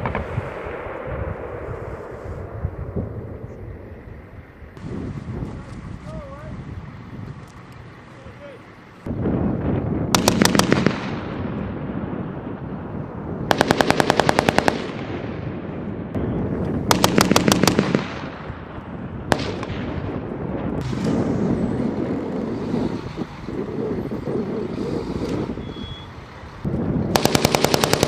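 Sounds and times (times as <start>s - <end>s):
steady low rumble: 0.0s - 28.0s
machine gun firing bursts: 10.2s - 11.1s, 13.5s - 15.0s, 16.9s - 18.2s, 27.1s - 28.0s.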